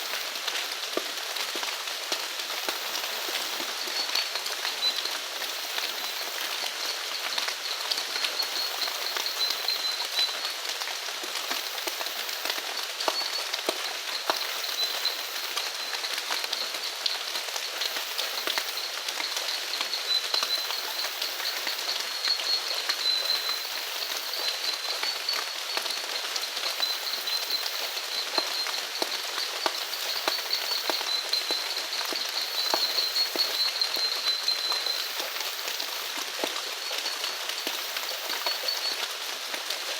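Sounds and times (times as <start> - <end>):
rain drops ticking: 0.0 - 39.9.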